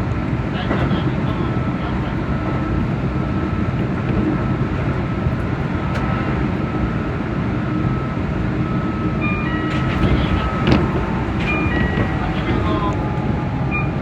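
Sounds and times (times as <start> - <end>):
train wheels rumbling on rail: 9.1 - 14.0.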